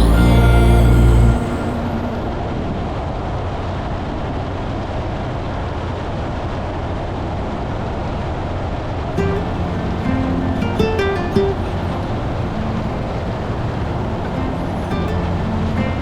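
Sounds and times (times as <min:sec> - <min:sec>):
car road noise rumble: 0:09.2 - 0:16.0.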